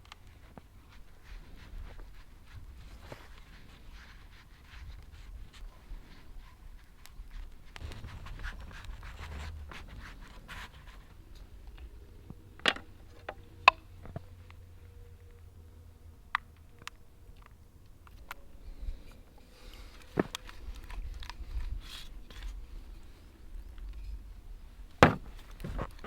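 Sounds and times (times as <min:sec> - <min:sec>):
soft scraping and rubbing: 0:18.9 - 0:22.7, 0:25.0 - 0:26.0
sharp knocks: 0:25.0 - 0:25.9.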